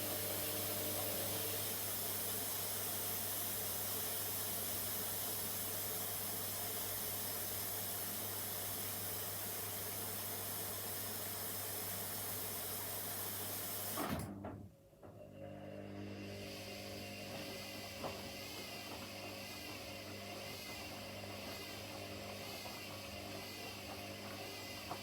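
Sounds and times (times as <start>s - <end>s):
water rushing into washing machine: 0.0s - 14.4s, 16.1s - 25.0s
washing machine hum: 0.0s - 25.0s.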